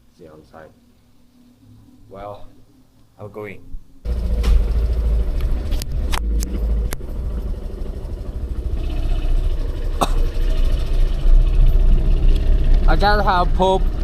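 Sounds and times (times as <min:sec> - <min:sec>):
motorbike running: 0:04.0 - 0:14.0.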